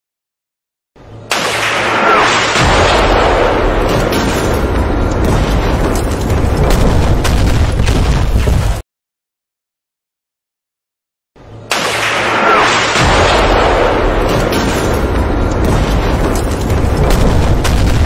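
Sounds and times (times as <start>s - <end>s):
rumble of explosions: 1.2s - 8.8s, 11.7s - 18.0s
crackling detonations: 1.3s - 8.8s, 11.7s - 18.0s.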